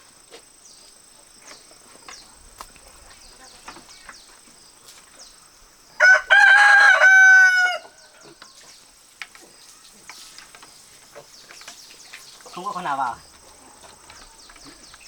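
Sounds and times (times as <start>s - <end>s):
faint chirps and ticks: 0.1s - 6.0s, 7.8s - 15.0s
rooster crowing: 6.0s - 8.2s.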